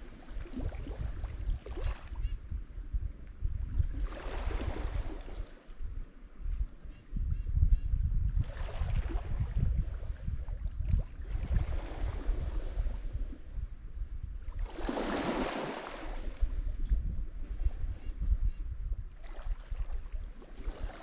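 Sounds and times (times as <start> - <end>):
wind rumble on microphone: 0.0 - 21.0
waves breaking on shore: 4.0 - 5.8, 11.1 - 13.0, 14.5 - 16.6, 19.2 - 21.0.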